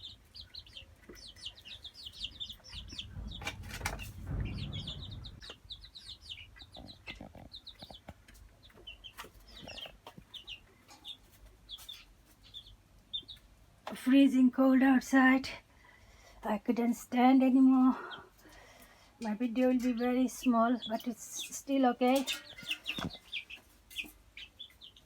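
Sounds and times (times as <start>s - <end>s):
chicks peeping: 0.0s - 25.0s
low rumble with knocks: 2.2s - 6.4s.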